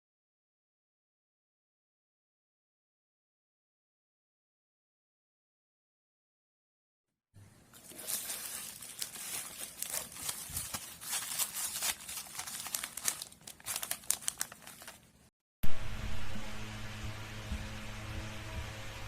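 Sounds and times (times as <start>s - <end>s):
plastic packaging crinkling: 7.7s - 15.3s
steady hum: 15.0s - 19.0s.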